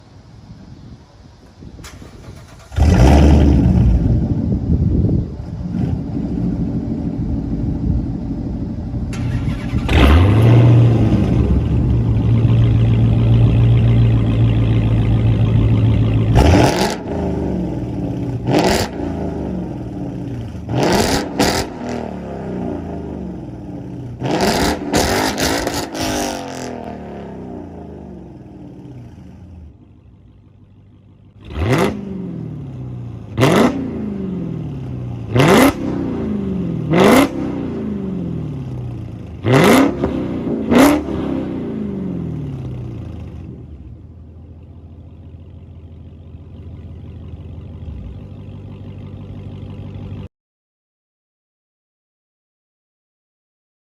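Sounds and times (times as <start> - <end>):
car engine revving: 2.1 - 30.1, 31.3 - 44.0.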